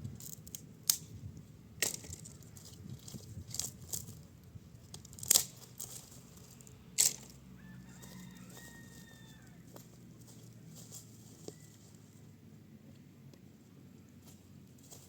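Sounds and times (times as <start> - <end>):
sharp cracks: 5.0 - 6.0
rooster crowing: 7.4 - 9.8.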